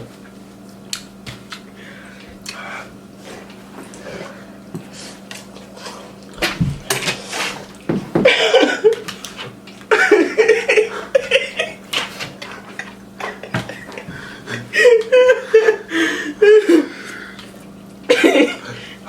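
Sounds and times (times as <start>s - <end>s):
people coughing: 8.2s - 9.0s, 9.9s - 11.8s, 18.1s - 19.0s
people laughing: 8.2s - 9.1s, 9.9s - 11.8s, 12.6s - 16.9s, 18.1s - 18.8s.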